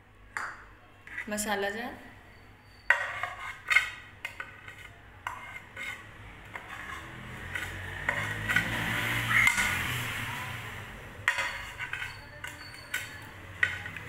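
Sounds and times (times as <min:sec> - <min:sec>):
spoon scraping and stirring: 0:00.4 - 0:01.6, 0:02.4 - 0:09.8, 0:11.2 - 0:14.0
spoon clinking on jar: 0:11.3 - 0:14.0.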